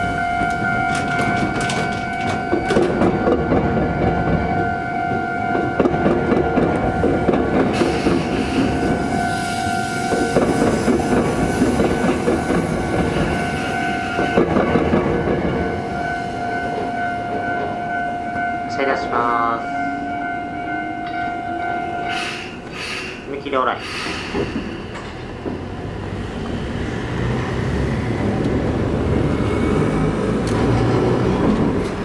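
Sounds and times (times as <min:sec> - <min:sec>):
level crossing alarm ringing: 0:00.0 - 0:23.7
train wheels clattering over rails: 0:00.3 - 0:17.8, 0:23.8 - 0:32.0.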